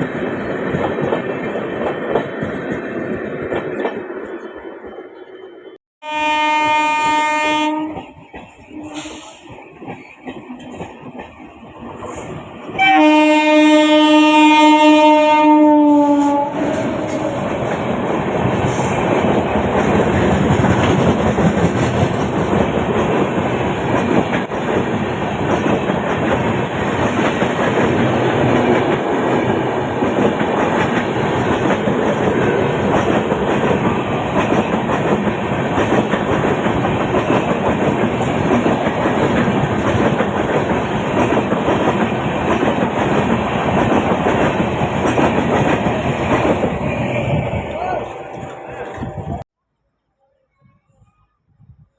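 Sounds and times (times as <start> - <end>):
train wheels rushing on rails: 0.0 - 5.7, 7.0 - 49.4
train horn blast: 6.0 - 8.0, 12.8 - 17.4.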